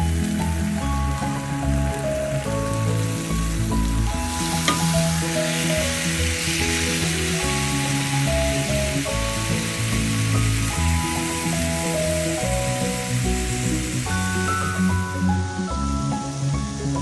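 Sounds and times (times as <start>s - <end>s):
chicken sizzling on a grill pan: 0.0s - 15.4s
background music with held notes: 0.0s - 17.0s.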